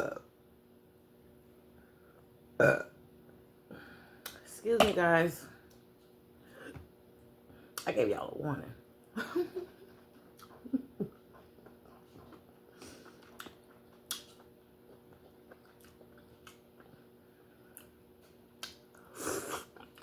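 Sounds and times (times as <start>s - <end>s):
quiet chewing: 9.8s - 20.0s.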